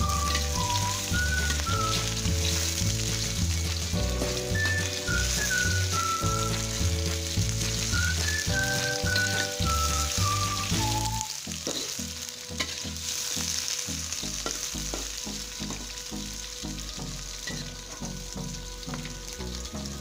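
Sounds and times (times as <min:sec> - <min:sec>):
soft music beat: 0:00.0 - 0:12.9, 0:14.2 - 0:20.0
metal spatula scraping wok: 0:00.0 - 0:13.7
onions sizzling in hot oil: 0:00.0 - 0:20.0.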